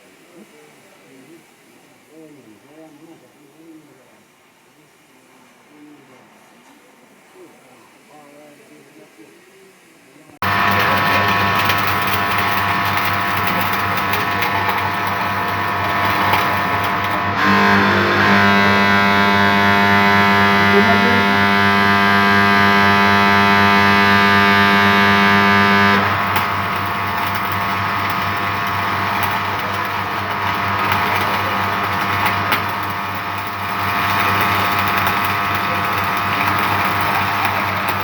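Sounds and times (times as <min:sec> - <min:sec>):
arc welder crackling buzz: 0:10.4 - 0:38.0
mains hum: 0:10.4 - 0:38.0.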